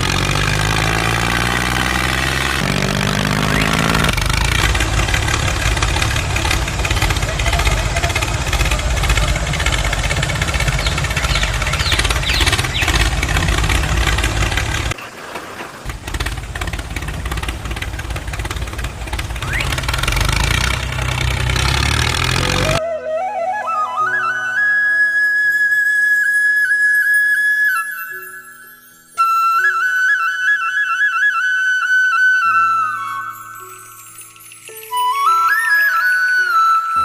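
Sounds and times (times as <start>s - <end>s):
small motor running: 0.0s - 15.0s, 15.8s - 22.8s
flute music: 2.6s - 13.8s, 22.3s - 37.0s.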